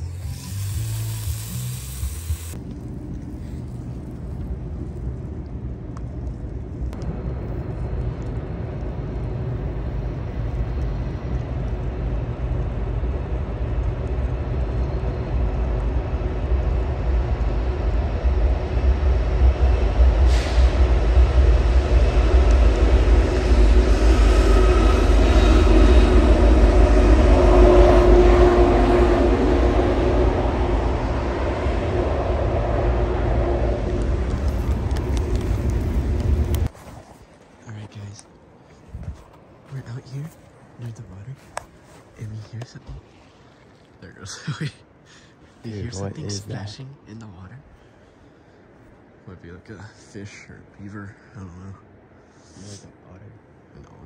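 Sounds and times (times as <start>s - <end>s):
train passing rumble: 0.0s - 43.0s.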